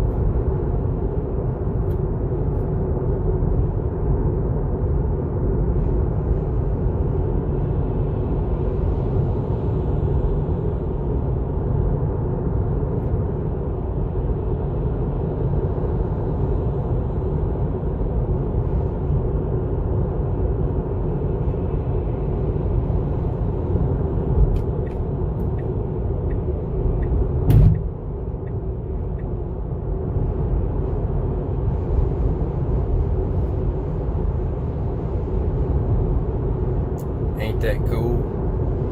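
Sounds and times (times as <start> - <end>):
car road and tyre rumble: 0.0 - 38.9
loud thump: 27.5 - 28.0.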